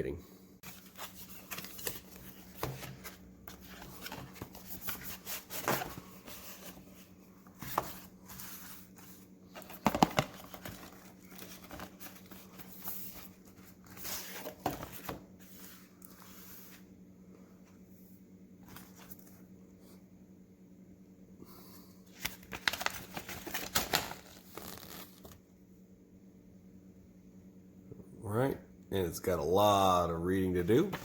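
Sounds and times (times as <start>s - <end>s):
cardboard box rustling: 0.7s - 15.6s.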